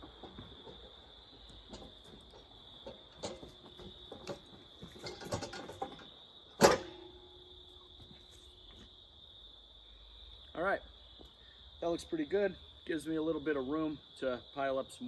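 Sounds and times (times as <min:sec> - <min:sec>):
metal clunks and creaks: 0:00.0 - 0:08.9
crickets trilling: 0:00.0 - 0:15.0
loud metallic clank: 0:01.7 - 0:07.4.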